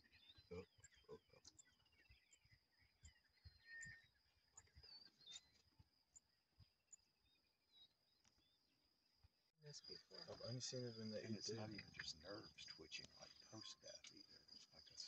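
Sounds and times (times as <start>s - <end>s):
birds chirping and whistling: 0.0s - 5.6s.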